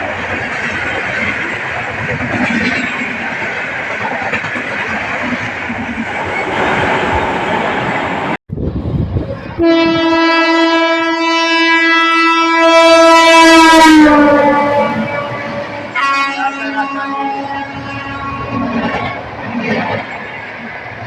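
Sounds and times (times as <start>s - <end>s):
express train passing: 0.0s - 21.0s
locomotive horn blast: 9.6s - 19.2s.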